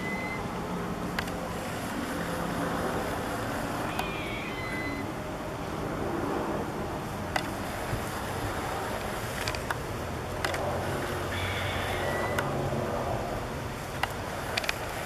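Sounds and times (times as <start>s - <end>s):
sharp ticks and clicks: 7.3s - 7.6s, 9.0s - 10.7s, 14.0s - 14.9s.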